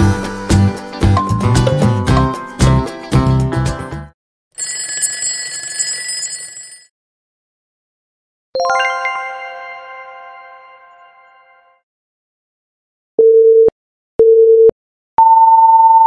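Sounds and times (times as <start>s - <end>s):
background music: 0.0s - 4.1s, 8.6s - 11.8s
alarm bell ringing: 4.6s - 6.9s
bright chime ringing: 8.6s - 11.8s.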